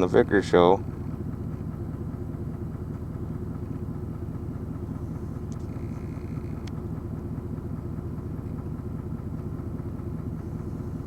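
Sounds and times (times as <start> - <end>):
vehicle engine idling: 0.0 - 11.0
faint ticks: 5.5 - 6.8.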